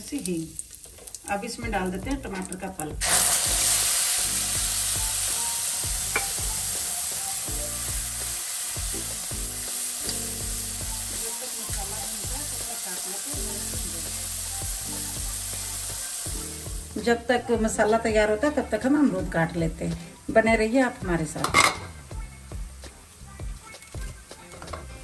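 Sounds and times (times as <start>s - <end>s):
tomato pulp sizzling in hot fat: 0.0s - 17.1s.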